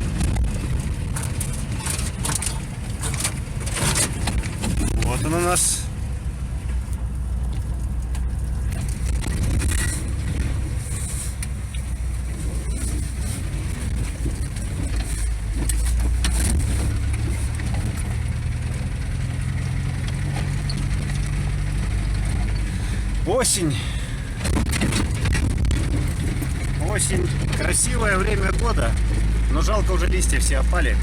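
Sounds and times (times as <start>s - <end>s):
knocks and rattles over bumps: 0.0s - 31.0s
van engine and road rumble: 0.0s - 31.0s.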